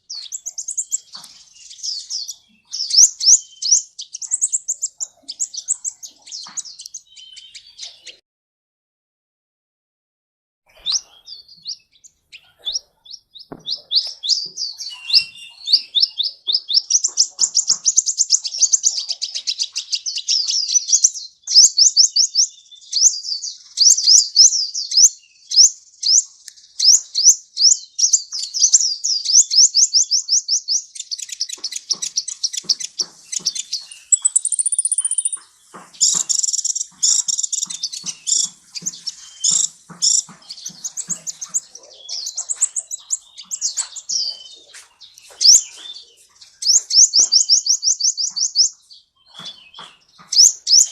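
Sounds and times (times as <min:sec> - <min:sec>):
bird chirping and trilling: 0:00.0 - 0:08.2, 0:10.7 - 0:50.9.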